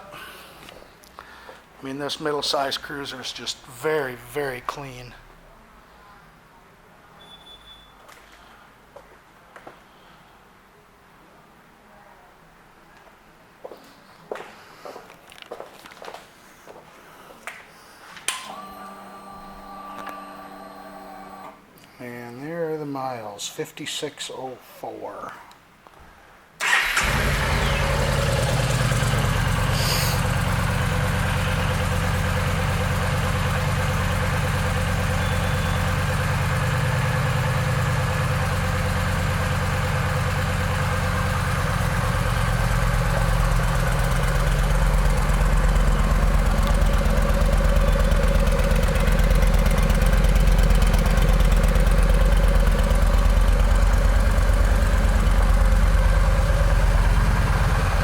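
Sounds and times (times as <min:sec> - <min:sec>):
motorcycle engine starting and idling: 0:26.6 - 0:58.0.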